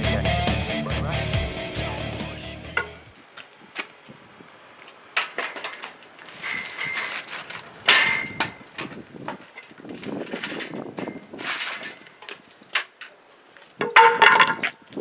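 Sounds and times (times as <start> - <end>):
metal clanks and knocks: 2.8 - 3.1, 5.0 - 14.9.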